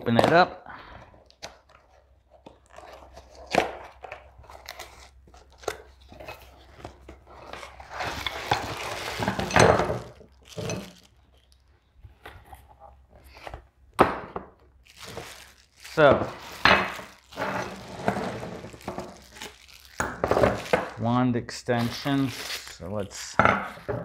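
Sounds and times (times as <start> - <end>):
packaging crinkling and tearing: 1.2 - 11.7, 14.7 - 23.8
packaging knocks and clicks: 14.9 - 21.0.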